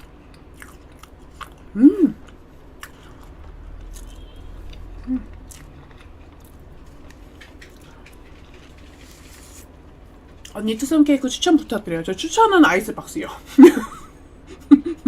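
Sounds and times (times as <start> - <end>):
person chewing: 0.0 - 9.6
person humming: 1.8 - 2.2, 5.1 - 5.3.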